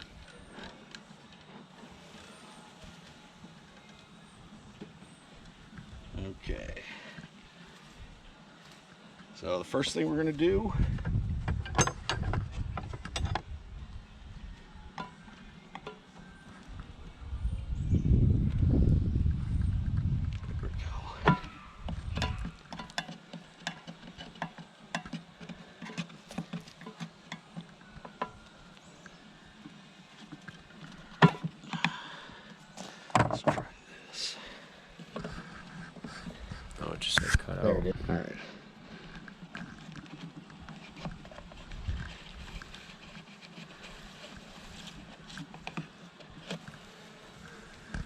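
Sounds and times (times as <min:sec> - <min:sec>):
honeybees buzzing: 0:43.7 - 0:48.0.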